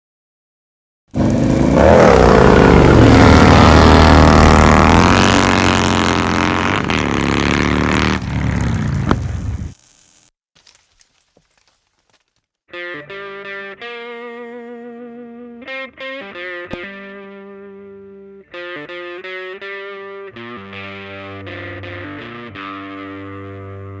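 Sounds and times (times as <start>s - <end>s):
motorcycle engine revving: 1.1s - 9.8s.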